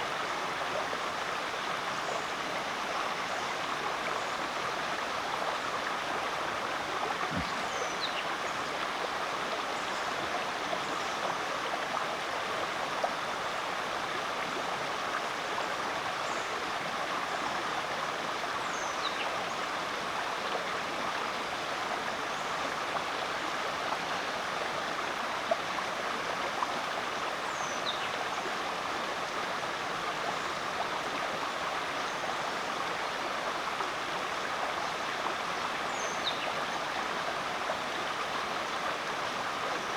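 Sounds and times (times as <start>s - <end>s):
creek water flowing: 0.0s - 39.9s.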